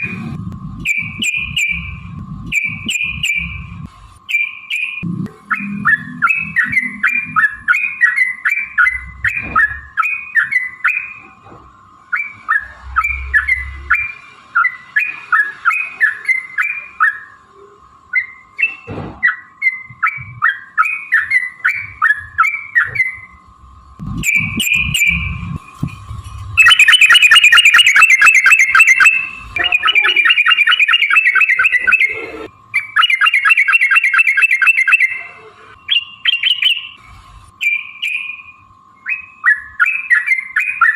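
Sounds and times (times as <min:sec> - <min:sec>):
bird fast rattling trill: 0:26.6 - 0:32.1, 0:32.8 - 0:35.2.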